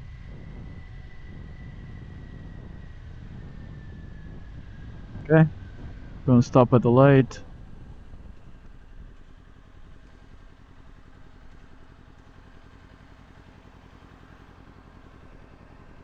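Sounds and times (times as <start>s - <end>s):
motorcycle engine idling: 7.4s - 16.0s.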